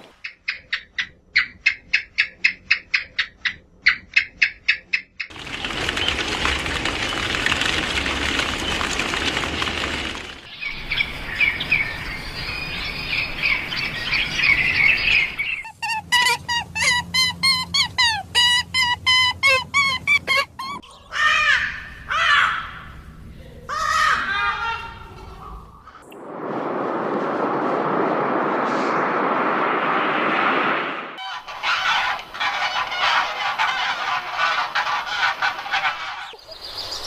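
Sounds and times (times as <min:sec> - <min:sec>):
falling bird chirps: 0:08.4 - 0:21.7
high bird chirping: 0:10.5 - 0:21.1.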